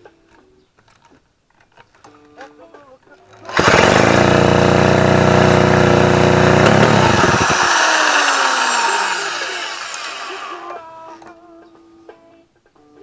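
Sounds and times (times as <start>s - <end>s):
two-stroke engine running: 3.5s - 10.7s.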